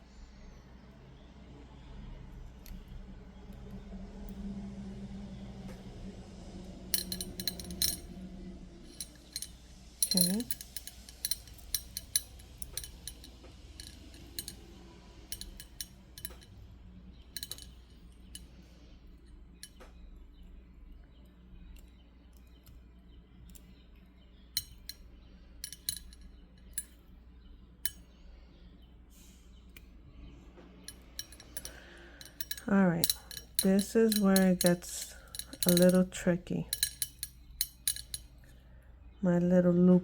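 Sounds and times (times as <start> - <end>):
beads clicking and clinking: 7.0 - 8.1, 8.9 - 14.7, 15.3 - 16.5, 17.4 - 18.4, 31.0 - 38.3.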